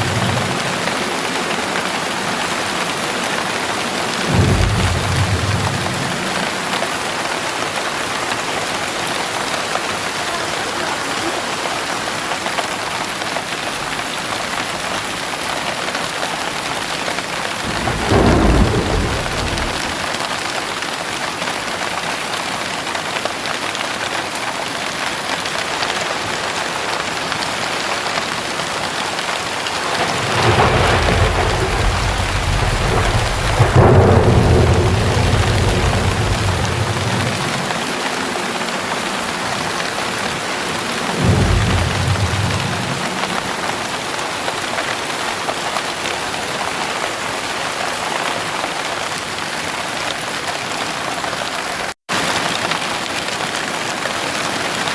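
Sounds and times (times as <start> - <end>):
thunder rumbling: 0.0 - 10.2, 17.5 - 20.8, 28.1 - 44.6
heavy rain pouring: 0.0 - 54.9.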